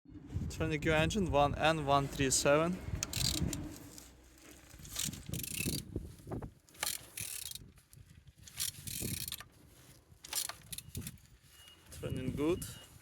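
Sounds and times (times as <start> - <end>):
ratchet wrench clicking: 3.0 - 3.6, 4.9 - 5.9, 6.7 - 7.6, 8.5 - 9.5, 10.3 - 11.2.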